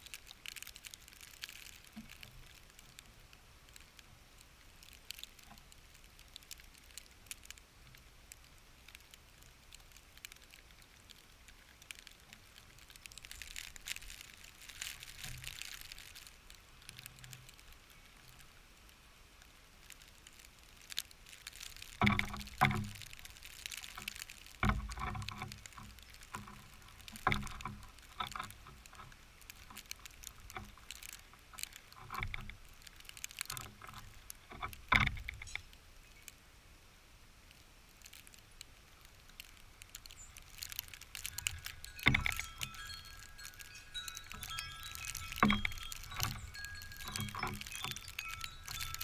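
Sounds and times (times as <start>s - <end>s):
light ticks: 0.0s - 36.4s, 37.4s - 49.0s
metallic ringing tones: 41.2s - 49.0s.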